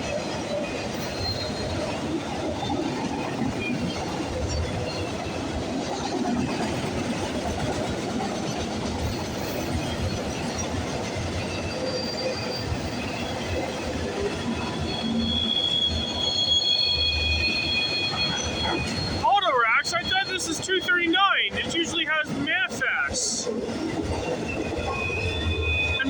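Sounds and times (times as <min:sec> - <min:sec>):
train wheels rumbling on rails: 0:00.0 - 0:26.0
high wheel squeal: 0:01.0 - 0:02.0, 0:09.1 - 0:20.6, 0:23.8 - 0:26.0.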